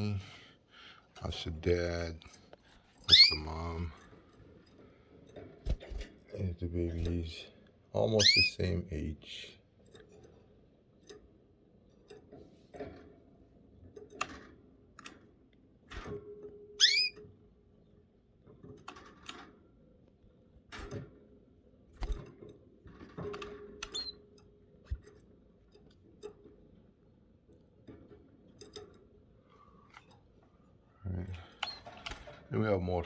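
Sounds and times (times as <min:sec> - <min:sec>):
birds clicking and tapping in cage: 0:01.1 - 0:07.3, 0:09.8 - 0:11.3, 0:11.9 - 0:13.2, 0:13.8 - 0:15.3, 0:18.4 - 0:19.6, 0:20.7 - 0:21.2, 0:21.9 - 0:26.9, 0:27.5 - 0:30.5, 0:31.3 - 0:32.8
canary chirp: 0:03.0 - 0:03.5, 0:08.2 - 0:08.6, 0:16.7 - 0:17.3, 0:23.8 - 0:24.2.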